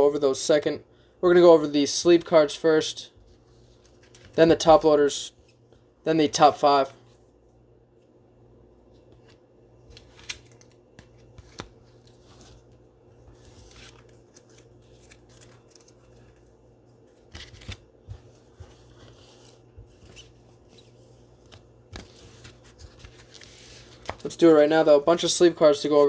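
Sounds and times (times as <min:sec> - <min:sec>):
faint rustling of cards: 0:01.5 - 0:07.7, 0:08.8 - 0:26.0.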